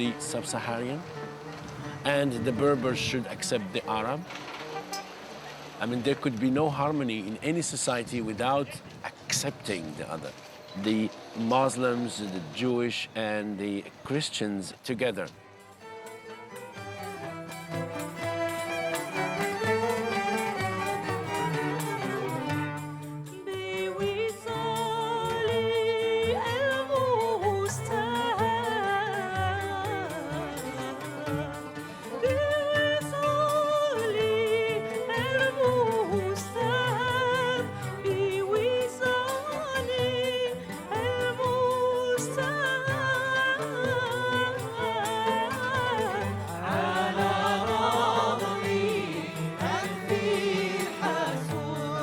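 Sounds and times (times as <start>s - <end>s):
instrumental accompaniment: 0.0s - 9.0s, 15.1s - 52.0s
person singing ornamented melody: 23.2s - 52.0s.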